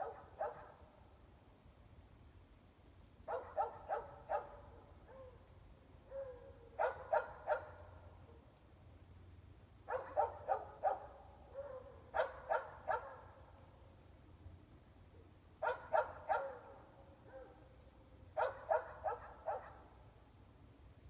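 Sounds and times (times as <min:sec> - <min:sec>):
dogs barking: 0:00.0 - 0:00.8, 0:03.3 - 0:05.4, 0:06.1 - 0:07.9, 0:09.9 - 0:13.3, 0:15.6 - 0:17.6, 0:18.4 - 0:19.9.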